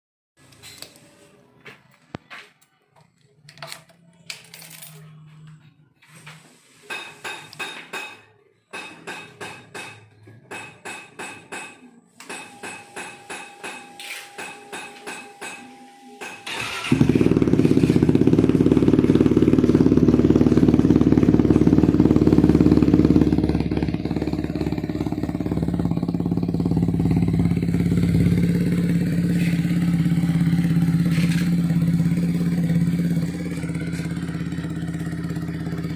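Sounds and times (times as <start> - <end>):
motorcycle engine idling: 16.4 - 35.9.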